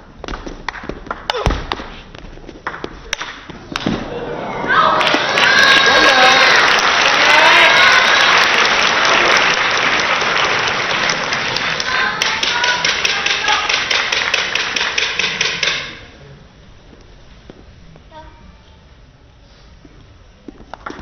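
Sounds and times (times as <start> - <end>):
rhythmic clapping: 0.2 - 1.9, 2.6 - 3.9, 5.0 - 16.0
spectators cheering and applauding: 4.0 - 15.2.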